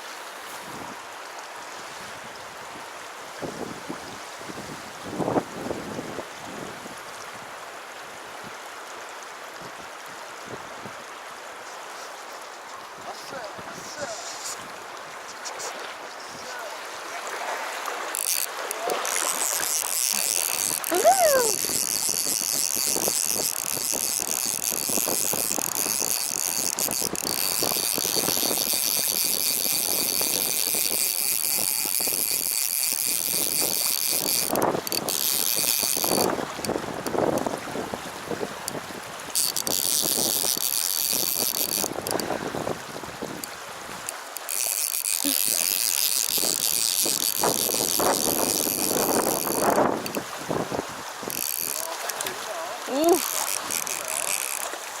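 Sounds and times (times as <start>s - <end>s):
stream water rushing: 0.0s - 55.0s
fishing reel drag clicking: 13.9s - 14.7s, 17.7s - 37.5s, 38.6s - 50.4s, 51.2s - 54.9s.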